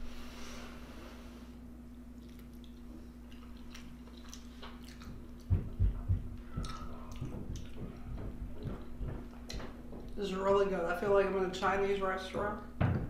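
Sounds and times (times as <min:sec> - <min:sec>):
steady low hum: 0:00.0 - 0:13.0
close chewing and mouth sounds: 0:01.9 - 0:10.2.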